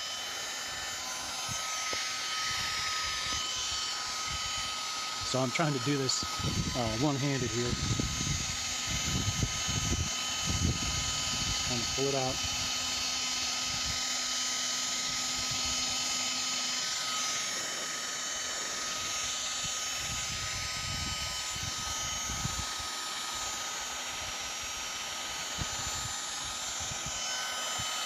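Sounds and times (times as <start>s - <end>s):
heat gun fan whine: 0.0s - 28.0s
wind rumble on microphone: 6.2s - 12.6s, 19.6s - 22.8s.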